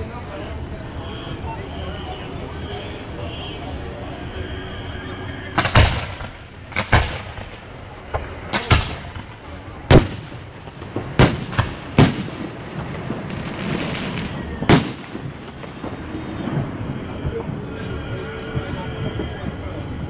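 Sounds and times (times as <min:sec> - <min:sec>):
fireworks booming: 0:00.0 - 0:20.0
fireworks crackling: 0:00.0 - 0:20.0.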